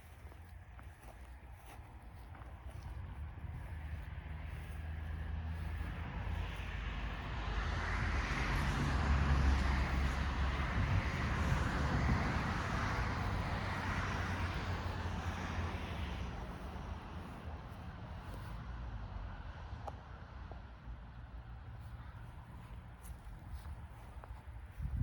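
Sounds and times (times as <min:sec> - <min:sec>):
tractor engine running: 0:00.0 - 0:17.9.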